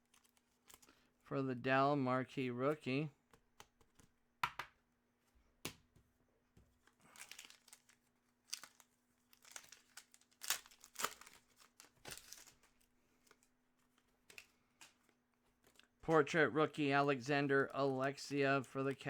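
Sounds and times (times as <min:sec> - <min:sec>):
wrappers crinkling and rustling: 0:00.0 - 0:01.2, 0:06.7 - 0:16.4, 0:17.3 - 0:19.0.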